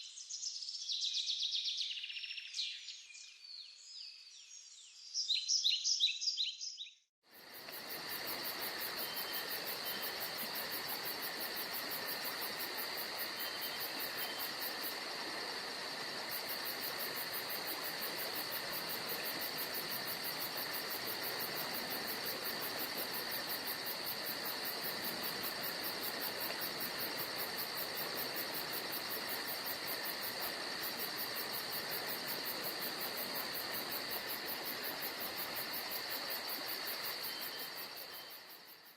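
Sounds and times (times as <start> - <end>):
crickets chirping: 7.3 - 38.9.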